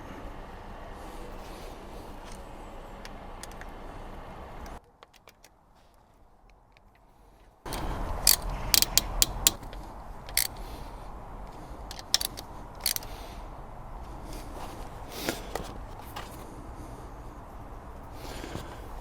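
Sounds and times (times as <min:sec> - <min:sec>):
metal tools clicking on metal: 0:07.7 - 0:10.7, 0:11.9 - 0:13.1.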